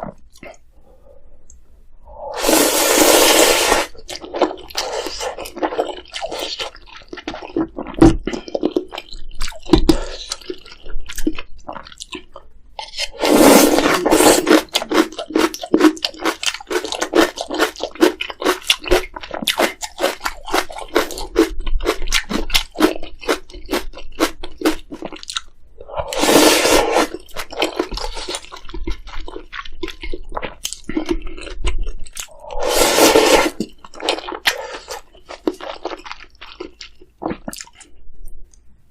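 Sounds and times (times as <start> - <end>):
slurping noodles: 2.1 - 6.5, 13.0 - 18.1, 25.8 - 28.4, 32.2 - 33.7
crunchy wet chewing: 13.8 - 37.9.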